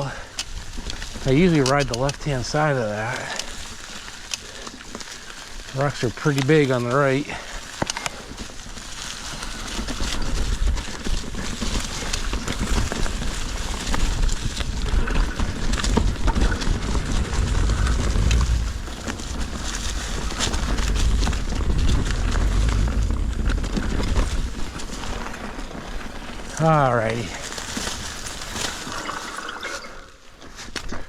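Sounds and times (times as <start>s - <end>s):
bike chain and frame rattling: 0.0s - 30.3s
wind rumble on microphone: 9.2s - 26.5s.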